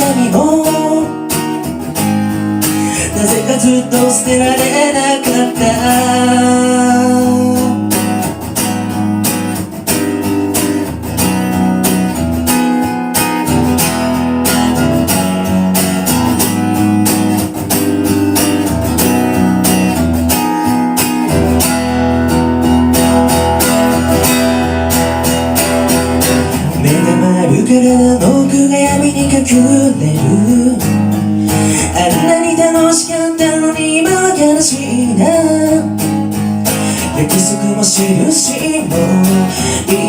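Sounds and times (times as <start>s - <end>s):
guitar strumming chords: 0.0s - 40.0s.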